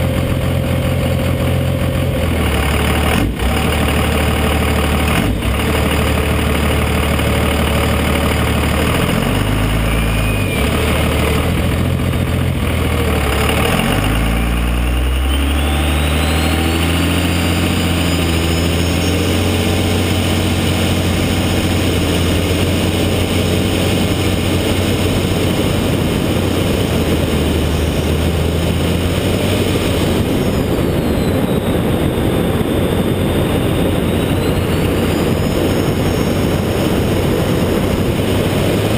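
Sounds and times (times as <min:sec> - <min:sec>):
diesel truck engine running: 0:00.0 - 0:38.9
turbo whistle: 0:09.6 - 0:11.2, 0:14.2 - 0:19.6, 0:30.6 - 0:36.2.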